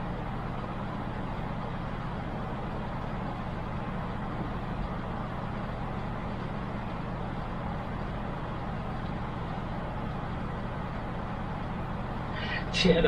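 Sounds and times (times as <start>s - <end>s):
low drone hum: 0.0s - 13.0s
even hiss: 12.3s - 13.0s.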